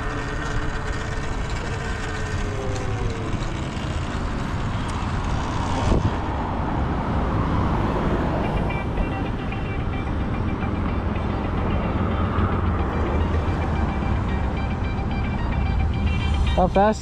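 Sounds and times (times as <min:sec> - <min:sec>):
electric motor whine: 0:00.0 - 0:06.6
road noise: 0:00.0 - 0:17.0
wind rushing over microphone: 0:02.8 - 0:08.4.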